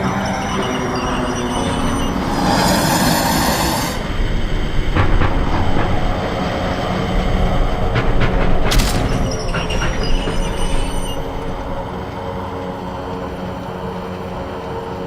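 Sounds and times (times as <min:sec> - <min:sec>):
high ringing squeal: 0:00.0 - 0:04.6, 0:08.8 - 0:12.1
train wheels clicking over rail joints: 0:02.1 - 0:12.2.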